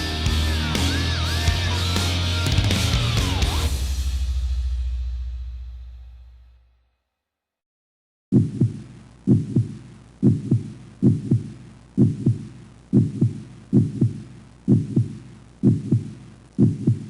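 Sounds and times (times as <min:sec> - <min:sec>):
heartbeat double thuds: 0:08.3 - 0:17.0.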